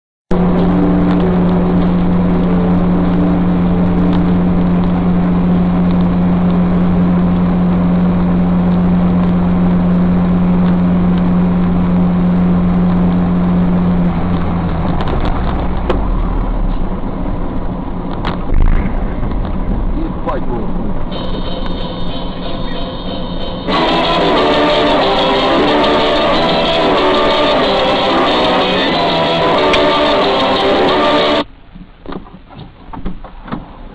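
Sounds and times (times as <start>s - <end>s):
vehicle road and engine drone: 0.3s - 33.9s
short loud burst: 18.5s - 30.5s.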